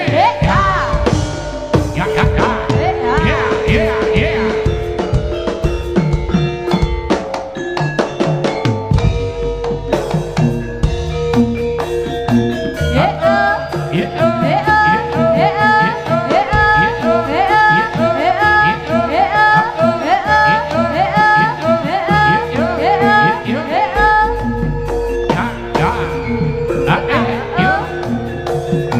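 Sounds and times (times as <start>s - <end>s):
wailing melody: 0.0s - 7.6s, 9.2s - 28.9s
gong-chime percussion: 0.0s - 28.9s
hand drums playing: 0.0s - 28.9s.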